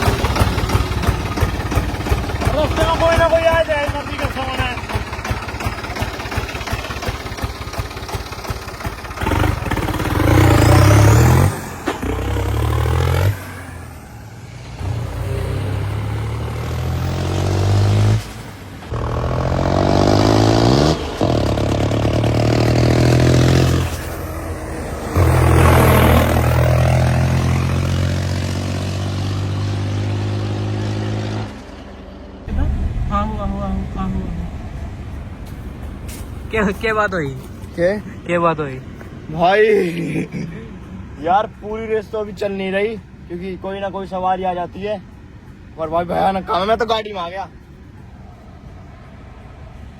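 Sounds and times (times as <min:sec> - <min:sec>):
diesel tractor engine revving: 0:00.0 - 0:31.7, 0:32.5 - 0:39.0.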